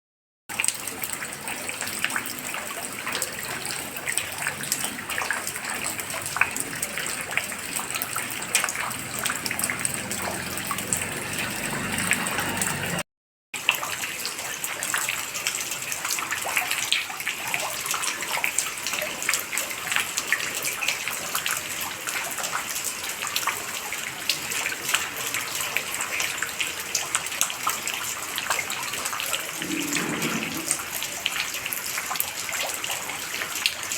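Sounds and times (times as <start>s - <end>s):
running water splashing: 27.5s - 32.8s.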